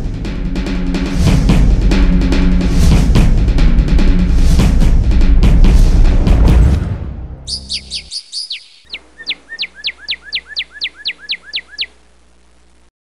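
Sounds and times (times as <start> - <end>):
drum music: 0.0 - 8.0
bird rapid falling chirps: 7.5 - 12.0.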